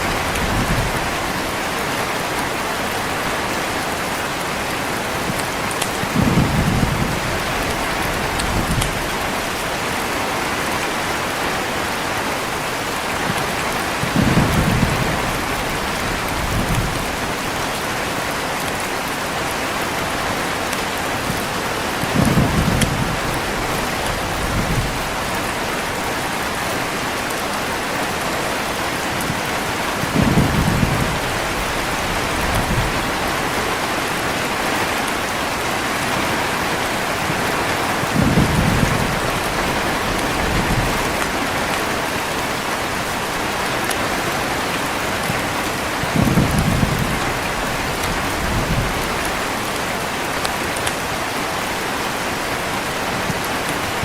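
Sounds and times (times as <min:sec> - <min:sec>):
heavy rain hissing: 0:00.0 - 0:54.0
thunder rolling: 0:06.0 - 0:09.4, 0:22.1 - 0:25.4, 0:30.0 - 0:33.7, 0:37.3 - 0:41.6.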